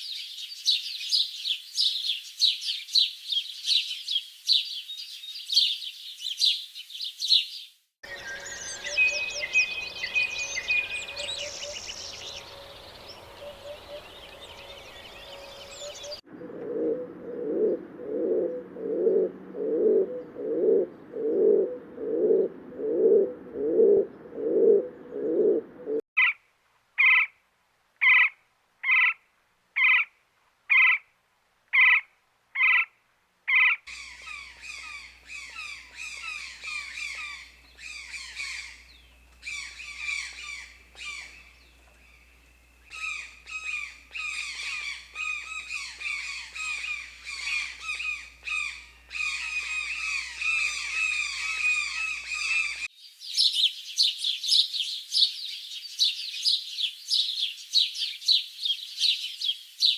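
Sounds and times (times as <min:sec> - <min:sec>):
birds calling: 0:07.3 - 0:26.0, 0:33.9 - 0:52.9
high-pitched bird calling: 0:08.0 - 0:16.2, 0:33.9 - 0:52.9.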